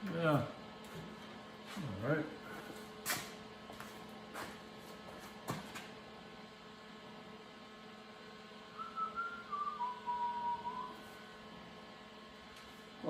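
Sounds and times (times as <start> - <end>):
faint steady hum: 0.0 - 13.0
person whistling: 8.8 - 11.3.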